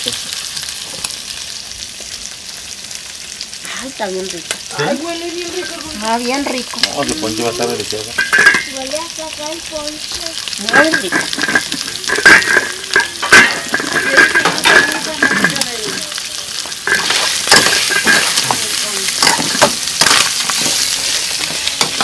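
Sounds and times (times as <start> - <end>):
meat sizzling in a pot: 0.0 - 22.0
metal spoon clinking on pot: 8.1 - 8.8, 10.7 - 16.0, 16.8 - 20.7
metal pot lid knocking: 8.2 - 8.7, 10.8 - 15.6.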